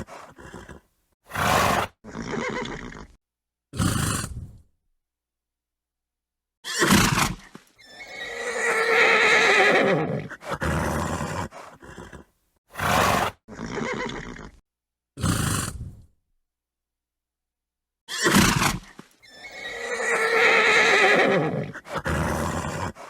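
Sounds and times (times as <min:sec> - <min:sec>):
horse snorting: 0:00.0 - 0:03.2, 0:03.8 - 0:04.6, 0:06.8 - 0:14.6, 0:15.2 - 0:16.1, 0:18.2 - 0:23.0
horse whinnying: 0:00.0 - 0:03.2, 0:06.6 - 0:14.6, 0:18.1 - 0:23.0.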